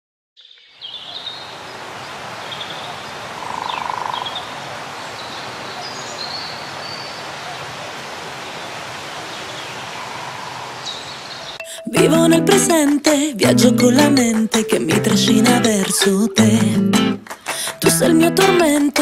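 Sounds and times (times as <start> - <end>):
steady outdoor hiss: 0.6 - 11.6.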